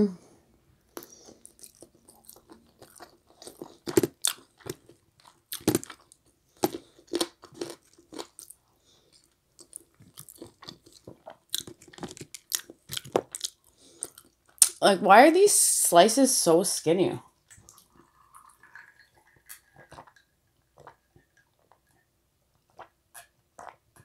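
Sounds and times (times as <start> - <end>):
chewing and wet lip smacks: 0.9 - 14.8.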